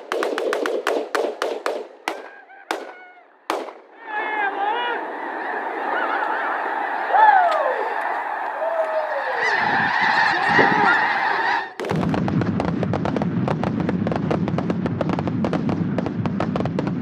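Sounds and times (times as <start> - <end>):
flock of geese calling: 2.1 - 11.8.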